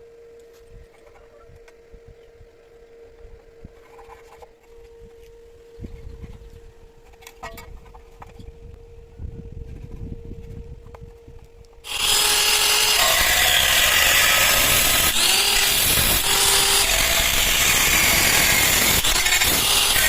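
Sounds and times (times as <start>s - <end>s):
angle grinder on steel: 11.9s - 20.0s.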